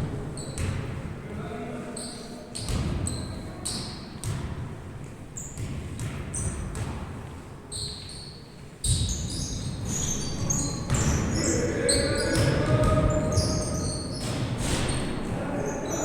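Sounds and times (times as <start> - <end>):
ball bouncing on indoor court: 0.0 - 1.1, 2.6 - 16.0
shoes squeaking on floor: 7.7 - 16.0.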